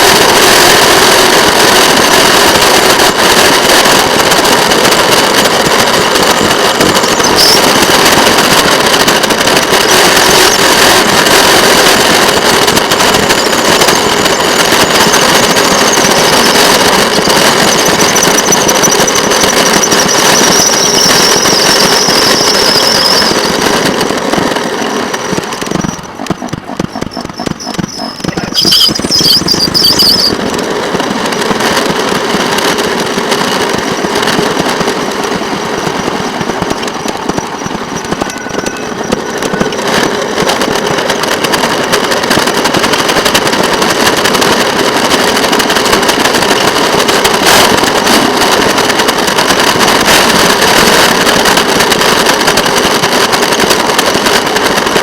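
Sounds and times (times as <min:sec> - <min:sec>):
rail vehicle rapid crackle: 0:00.0 - 0:55.0
high squeal: 0:06.7 - 0:08.2, 0:13.2 - 0:24.0, 0:24.8 - 0:30.4, 0:35.6 - 0:40.5.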